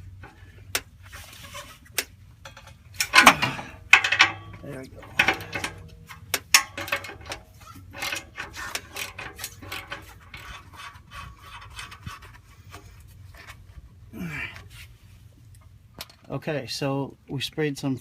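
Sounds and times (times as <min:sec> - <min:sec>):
metal clicks and scrapes: 0:00.0 - 0:13.9.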